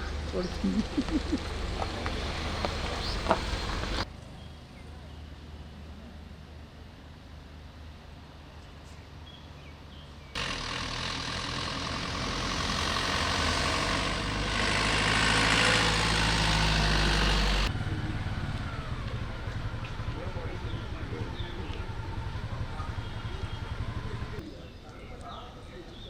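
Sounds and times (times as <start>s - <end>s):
vehicle engine running close: 0.0s - 6.5s, 10.3s - 24.4s.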